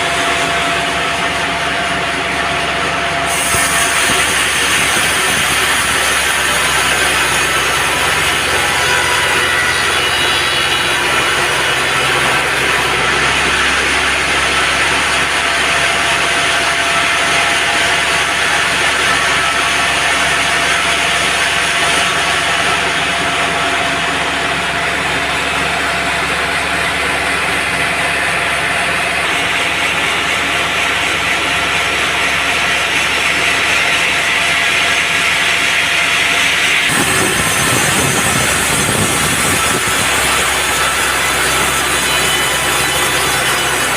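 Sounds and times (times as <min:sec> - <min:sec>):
sawmill engine hum: 0:00.0 - 0:43.9
saw blade hissing through wood: 0:03.3 - 0:12.9.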